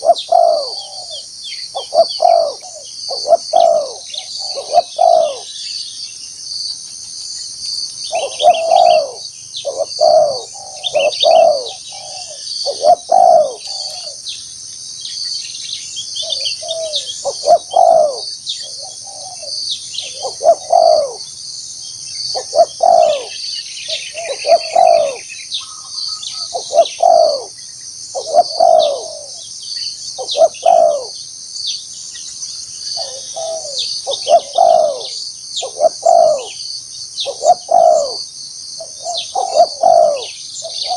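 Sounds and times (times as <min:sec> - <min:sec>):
doves cooing: 0:00.0 - 0:05.6, 0:08.1 - 0:14.3, 0:16.2 - 0:21.4, 0:22.3 - 0:29.5, 0:30.2 - 0:31.2, 0:32.9 - 0:36.6, 0:37.2 - 0:40.9
insects droning: 0:00.0 - 0:40.9.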